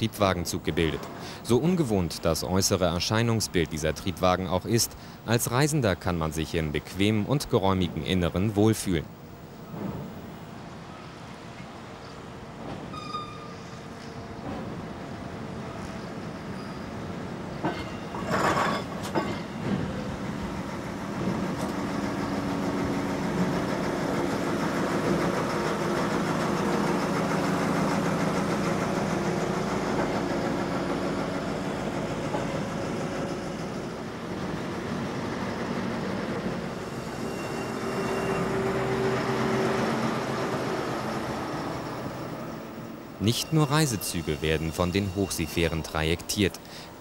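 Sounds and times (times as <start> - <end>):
diesel train engines humming: 0.0 - 47.0
wheel and rail noise: 9.2 - 46.3.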